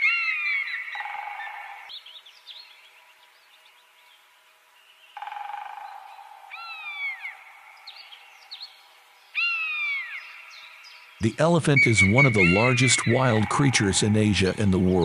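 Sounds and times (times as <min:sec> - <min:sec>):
whistled bird calls falling in pitch: 0:11.8 - 0:13.2.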